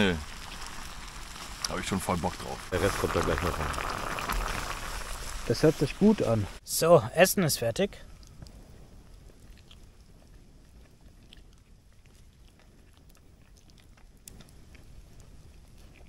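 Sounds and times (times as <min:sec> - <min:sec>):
person chewing: 0:08.1 - 0:16.0.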